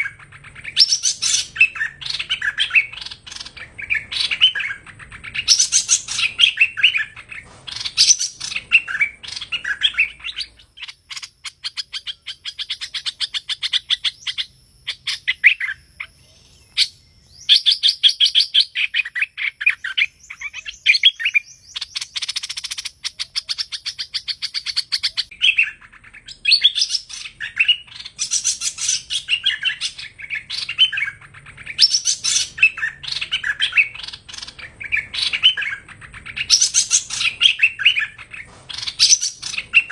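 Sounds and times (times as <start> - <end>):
bird rattling trills: 0.0 - 15.8, 21.9 - 39.9
bird chirping and whistling: 0.0 - 39.9
bird harsh buzz: 0.0 - 39.9.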